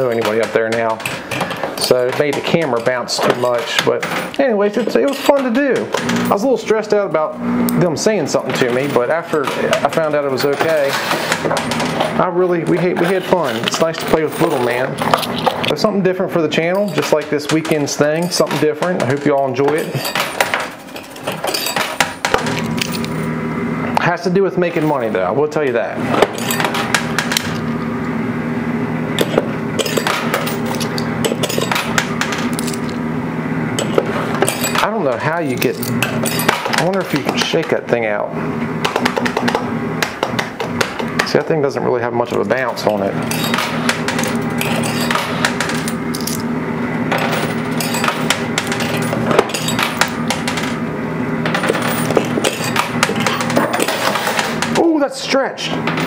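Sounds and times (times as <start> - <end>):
low machine hum: 0.0 - 56.0
coins clinking and clattering: 12.8 - 15.8, 16.7 - 23.3, 26.3 - 27.6, 29.2 - 33.0, 33.8 - 37.2, 42.9 - 46.5, 47.1 - 50.8, 51.4 - 54.7.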